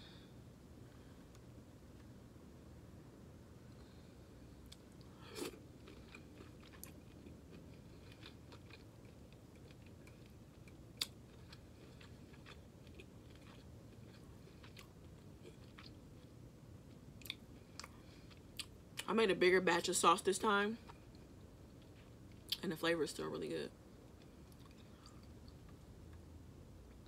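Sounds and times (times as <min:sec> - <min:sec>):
chewing food: 0:04.6 - 0:19.1, 0:24.1 - 0:26.3.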